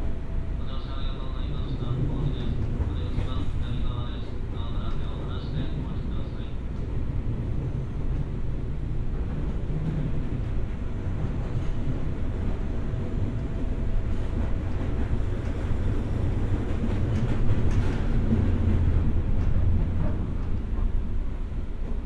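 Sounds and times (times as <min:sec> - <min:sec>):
train wheels rumbling on rail: 0:00.0 - 0:22.0
train clicks: 0:01.3 - 0:07.0, 0:09.1 - 0:22.0.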